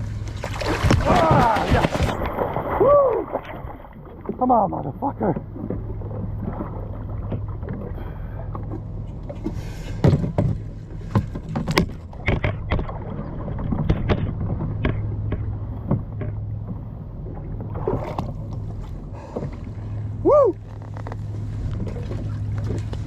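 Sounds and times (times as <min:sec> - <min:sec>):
low hum: 0:00.0 - 0:23.0
water splashing: 0:00.0 - 0:23.0
knocks and clatters: 0:09.3 - 0:13.0, 0:13.6 - 0:16.4.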